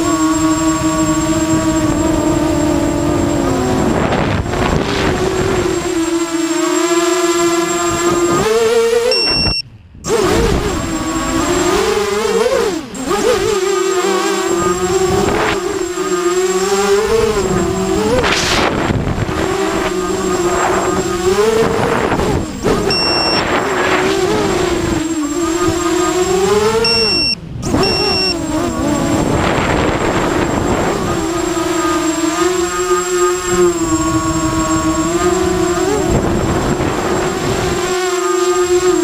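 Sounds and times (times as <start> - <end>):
quadcopter motors whining: 0.0 - 39.0
high beep: 9.1 - 9.6, 22.9 - 23.5, 26.8 - 28.4.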